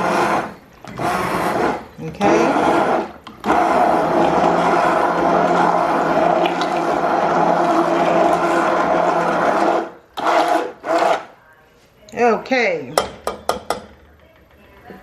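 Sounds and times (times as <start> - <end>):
immersion blender motor hum: 0.0 - 11.3.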